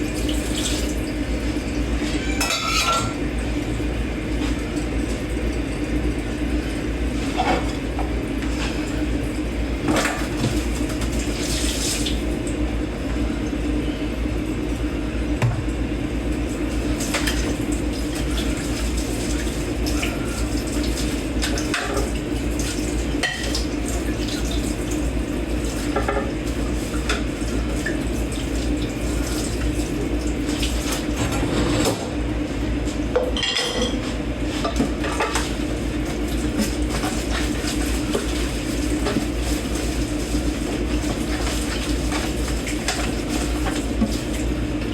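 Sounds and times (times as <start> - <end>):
running tap water: 0.0 - 13.6, 14.6 - 31.9, 34.9 - 44.9
dishes and cutlery clinking: 2.2 - 3.2.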